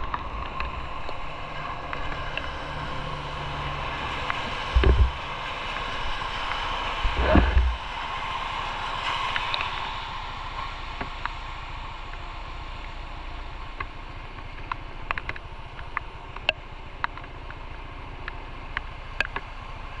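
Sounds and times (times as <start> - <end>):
light ticks and clicks: 13.7 - 19.5.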